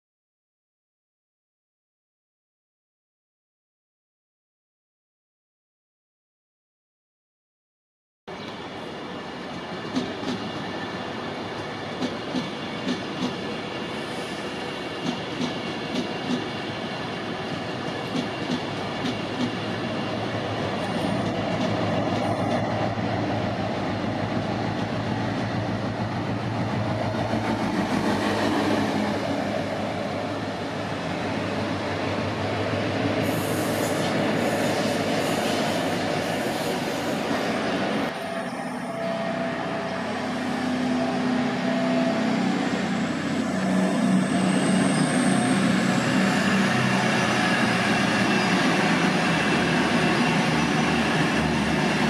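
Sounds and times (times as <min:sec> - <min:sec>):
train rumbling: 0:08.4 - 0:52.0
train wheels clicking over rail joints: 0:11.9 - 0:13.5, 0:15.0 - 0:16.5, 0:17.8 - 0:19.7.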